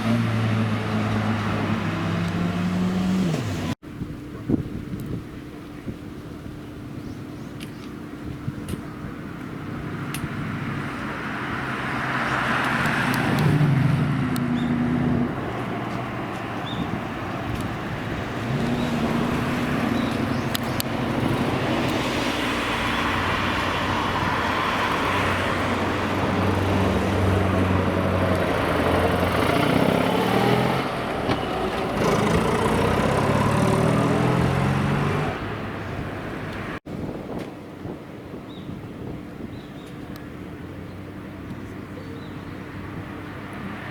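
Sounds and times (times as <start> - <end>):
car engines revving: 0.0 - 3.8, 9.2 - 36.8
road and traffic noise: 0.0 - 43.9.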